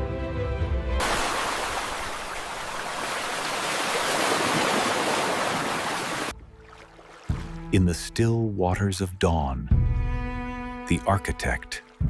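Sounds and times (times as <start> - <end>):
rushing water: 1.0 - 7.9.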